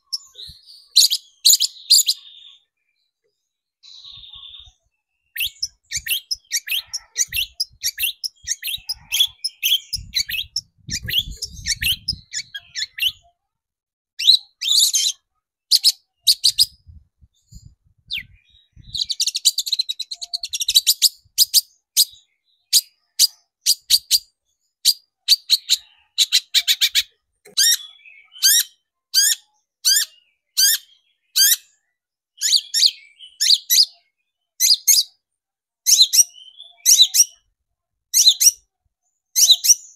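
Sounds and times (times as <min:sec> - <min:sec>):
loud sharp bird calls: 0:00.0 - 0:02.8, 0:03.9 - 0:13.2, 0:18.1 - 0:31.8, 0:32.4 - 0:34.0
bird chattering song: 0:00.0 - 0:13.4, 0:14.2 - 0:35.2, 0:35.8 - 0:37.5, 0:38.1 - 0:38.7, 0:39.3 - 0:39.9.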